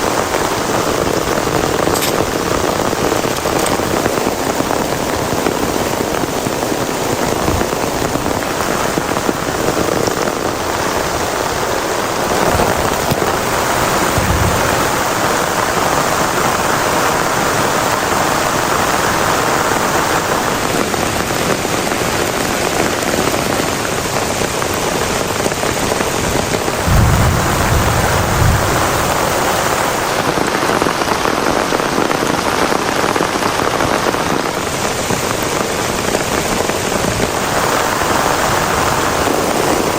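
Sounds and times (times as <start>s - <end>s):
heavy rain pouring: 0.0s - 39.9s
low rumbles: 10.2s - 16.5s, 26.7s - 30.1s.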